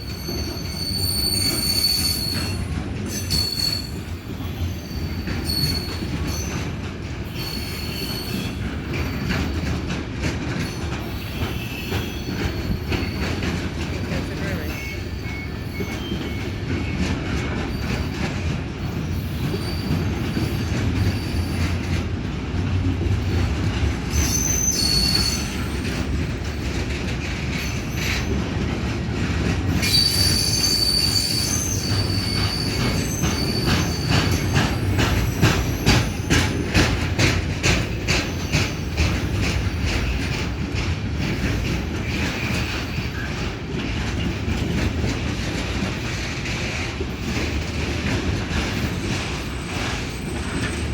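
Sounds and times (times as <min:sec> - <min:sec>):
train wheel squeals: 0:00.0 - 0:22.0, 0:23.2 - 0:50.9
freight train wheels rumbling: 0:00.0 - 0:50.9
wheels clicking over rail joints: 0:16.0 - 0:50.9.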